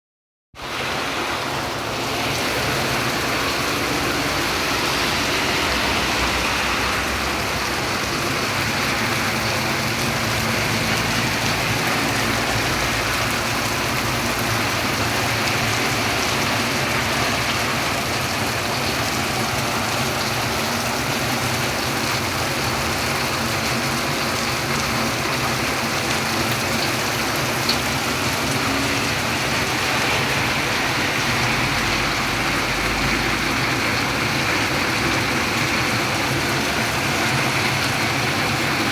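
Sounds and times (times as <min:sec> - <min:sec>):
rain falling steadily: 0:00.6 - 0:38.9.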